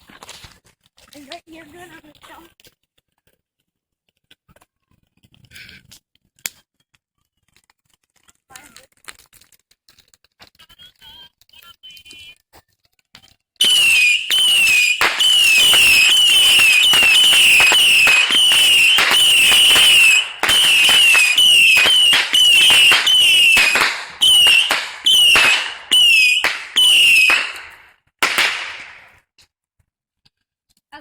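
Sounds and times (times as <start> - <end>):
firework whistle falling in pitch: 13.6 - 29.0
firework crackling: 13.6 - 29.2.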